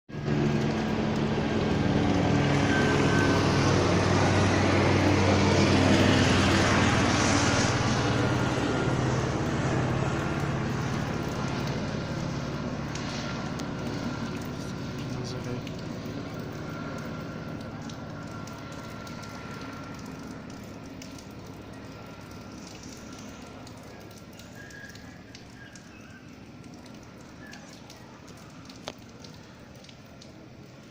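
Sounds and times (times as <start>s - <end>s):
high turbine whine: 0.1s - 24.4s
helicopter rotor chopping: 0.1s - 24.5s.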